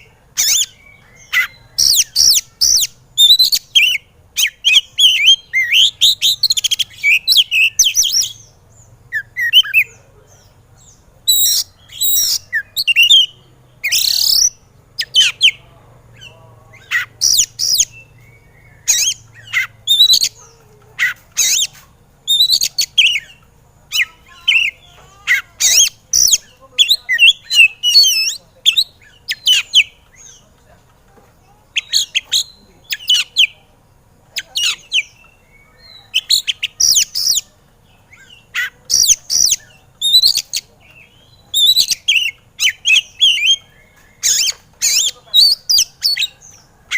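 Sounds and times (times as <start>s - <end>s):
magpie-robin singing: 0.0s - 46.9s.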